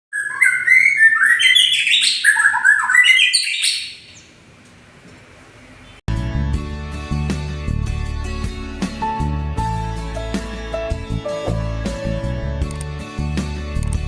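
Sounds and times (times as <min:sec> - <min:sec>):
bird singing clear varied notes: 0:00.1 - 0:04.4.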